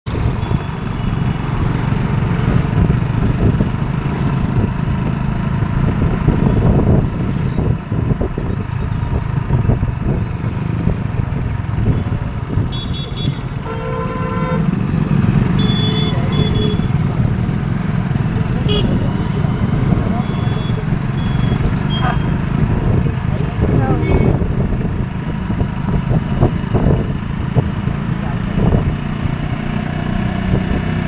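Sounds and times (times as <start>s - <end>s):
motor vehicle rumbling: 0.0s - 31.0s
vehicle horn toot: 12.7s - 14.7s, 15.6s - 17.0s, 18.6s - 19.0s.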